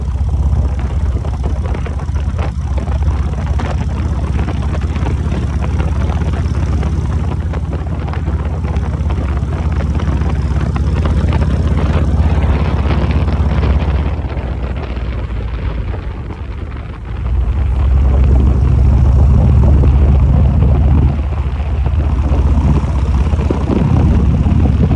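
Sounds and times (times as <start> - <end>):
motorcycle engine running: 0.0 - 24.9
wind buffeting microphone: 0.0 - 24.9.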